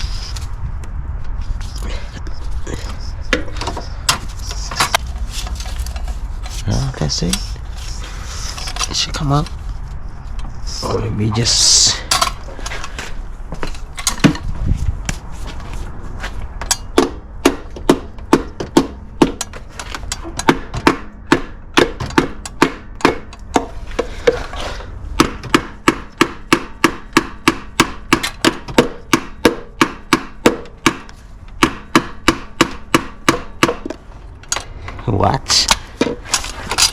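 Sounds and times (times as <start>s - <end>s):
scraping: 1.3s - 11.0s
hammer striking metal: 20.4s - 23.7s, 25.2s - 34.0s.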